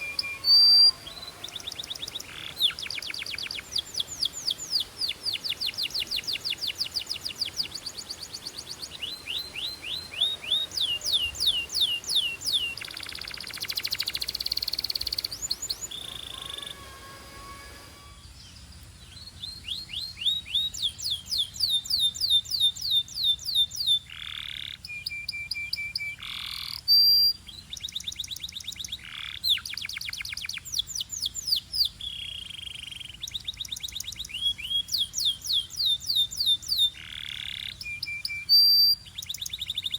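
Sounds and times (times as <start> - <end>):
canary singing trills: 0.0 - 39.9
canary buzzing roll: 14.0 - 18.4.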